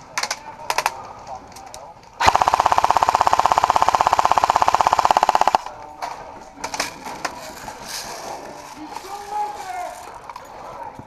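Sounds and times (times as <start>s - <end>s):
airsoft gun full-auto burst: 2.2s - 5.7s.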